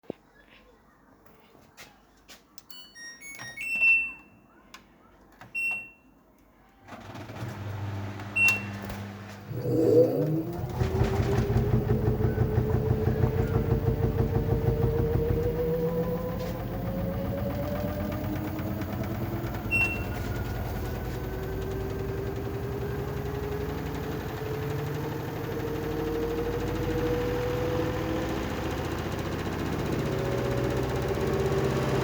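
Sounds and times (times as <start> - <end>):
washing machine spinning: 7.0 - 32.0.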